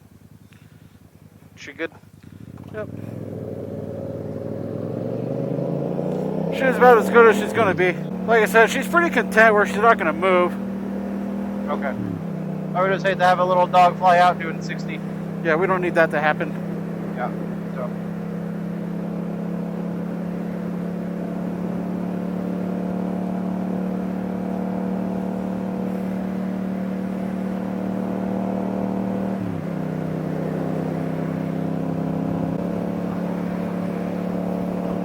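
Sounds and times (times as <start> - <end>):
motorcycle engine cruising: 0.0 - 35.0.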